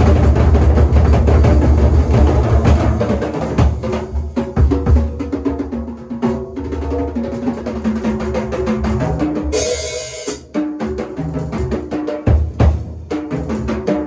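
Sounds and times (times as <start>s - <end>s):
drum kit fast strokes: 0.0s - 4.7s, 9.5s - 10.5s
cymbal crash: 9.5s - 10.4s.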